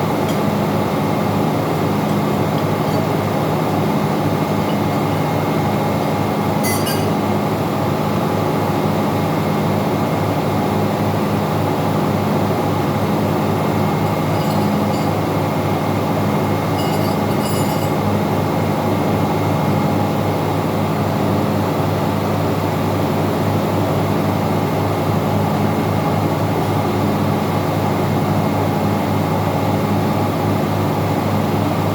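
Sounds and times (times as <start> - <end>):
engine-room machinery drone: 0.0 - 31.9
brief metallic clinks: 6.6 - 7.2, 14.0 - 15.3, 16.8 - 18.0.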